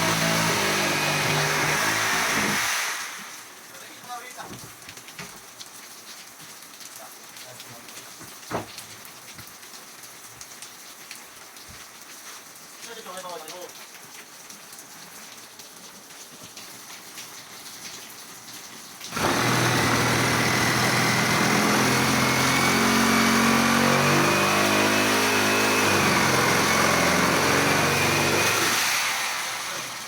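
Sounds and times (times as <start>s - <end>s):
loud motor humming and whining: 0.0s - 2.9s, 19.1s - 30.0s.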